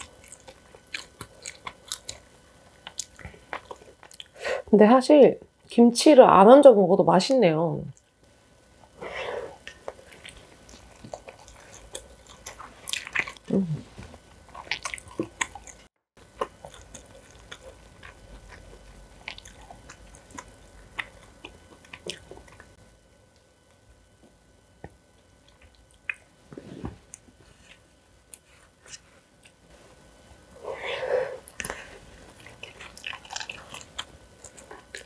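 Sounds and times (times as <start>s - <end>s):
close chewing of noodles: 0.0s - 4.4s, 8.9s - 22.8s, 30.5s - 35.0s.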